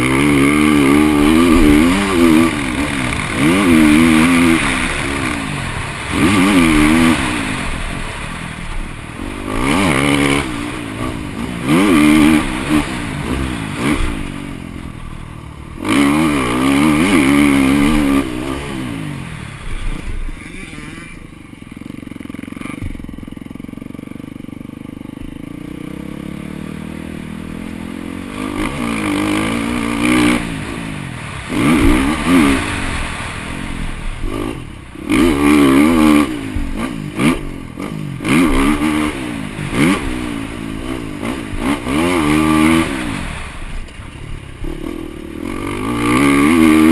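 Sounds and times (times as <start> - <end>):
motocross engine revving: 0.0 - 46.9.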